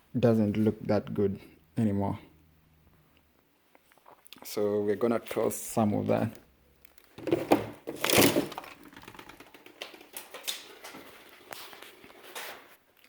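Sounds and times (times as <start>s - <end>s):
sharp knocks and clatters: 7.1s - 11.6s.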